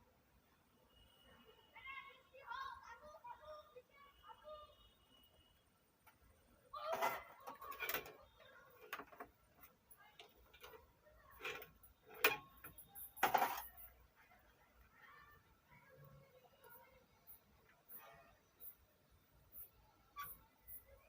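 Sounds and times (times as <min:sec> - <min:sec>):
wires clicking and rustling: 0:06.8 - 0:14.0.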